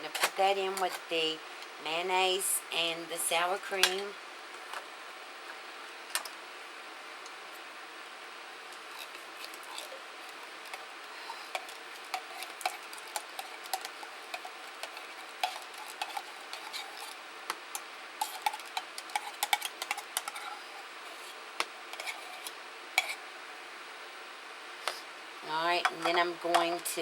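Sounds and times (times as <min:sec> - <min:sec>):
spoon scraping a can and bowl: 0:08.8 - 0:17.2, 0:18.2 - 0:23.2.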